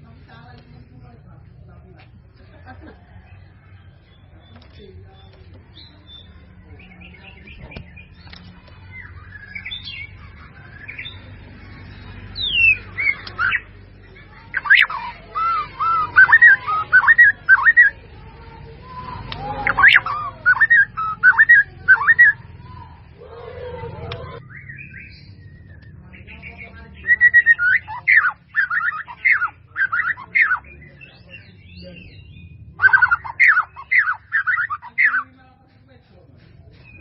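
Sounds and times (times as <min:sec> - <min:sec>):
bird chattering and gliding notes: 0:03.1 - 0:37.0
bird whistling looping notes: 0:09.0 - 0:11.3, 0:12.4 - 0:18.0, 0:19.3 - 0:22.6, 0:24.4 - 0:35.3.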